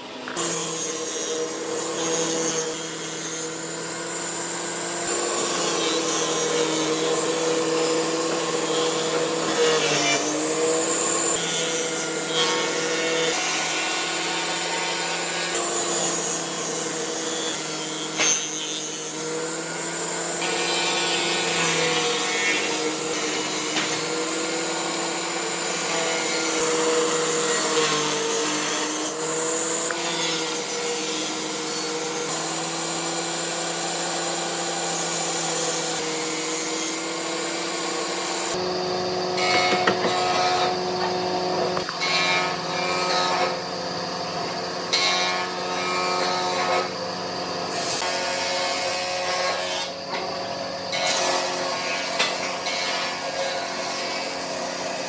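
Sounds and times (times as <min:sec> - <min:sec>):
power tool motor humming: 0:00.2 - 0:55.0
wood rasping: 0:39.4 - 0:42.4.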